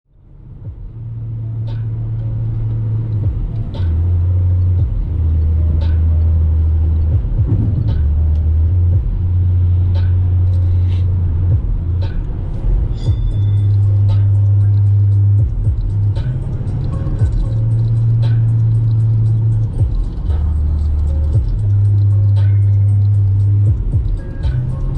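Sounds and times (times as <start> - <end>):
van engine droning: 0.1 - 24.9.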